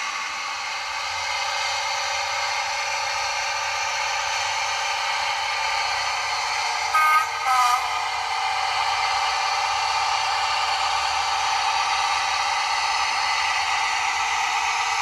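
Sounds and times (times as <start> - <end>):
model locomotive engine sound: 0.0 - 15.0
two-tone horn: 6.9 - 8.1.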